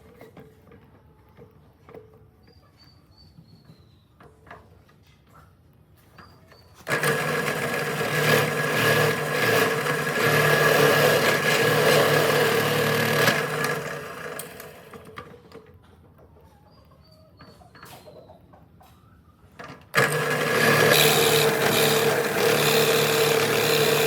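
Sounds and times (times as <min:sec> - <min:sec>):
power tool motor running: 0:06.8 - 0:15.1, 0:20.0 - 0:24.0.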